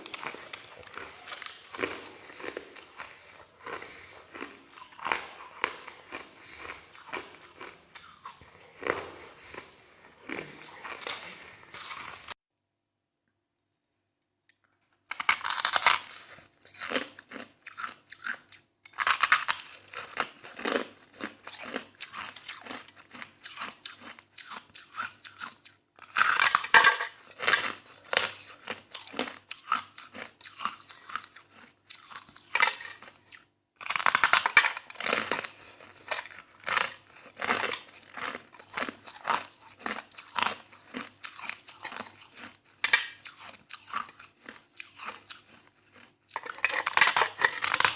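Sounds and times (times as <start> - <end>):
person crunching ice: 0.0 - 12.4, 15.1 - 18.3, 26.0 - 47.9.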